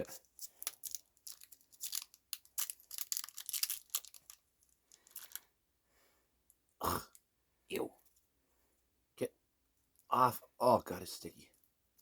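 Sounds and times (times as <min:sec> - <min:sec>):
candy wrapper tearing and crinkling: 0:00.2 - 0:05.5.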